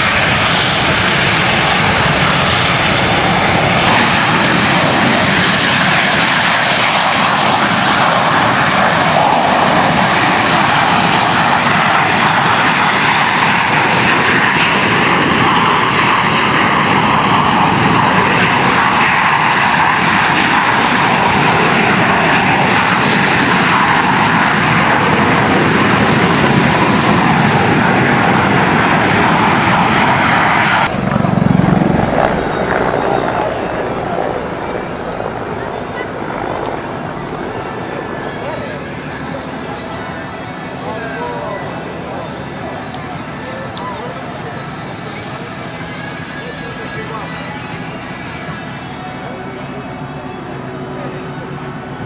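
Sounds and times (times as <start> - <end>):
airplane engine noise: 0.0 - 52.0.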